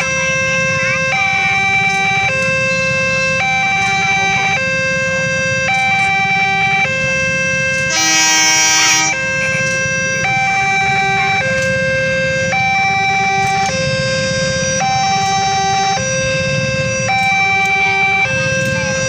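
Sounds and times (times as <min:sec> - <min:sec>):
two-tone crossing alarm: 0:00.0 - 0:19.0
horn blast: 0:06.8 - 0:12.8.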